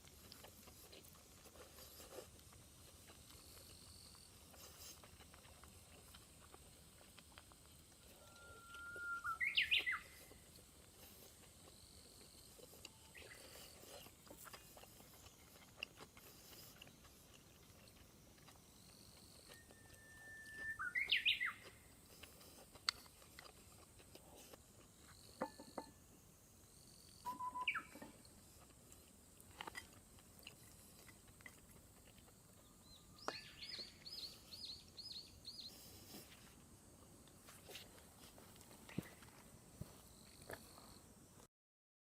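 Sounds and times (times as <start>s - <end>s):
birds calling: 8.7s - 10.4s, 27.3s - 28.2s.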